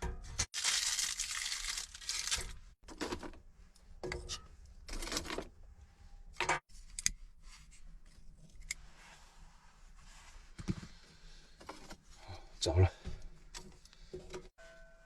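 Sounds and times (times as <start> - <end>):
crinkly material crumpling and tearing: 0.5 - 2.8.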